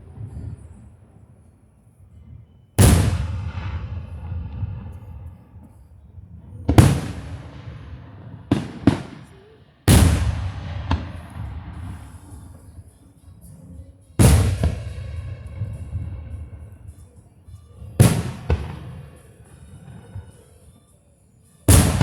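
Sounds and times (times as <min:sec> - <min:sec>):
firework sharp cracks: 0:02.8 - 0:05.9, 0:06.7 - 0:13.1, 0:14.2 - 0:17.1, 0:18.0 - 0:20.4, 0:21.7 - 0:22.0
firework booms with rumbling echo: 0:02.8 - 0:13.0, 0:14.2 - 0:17.0, 0:17.8 - 0:19.3, 0:21.7 - 0:22.0.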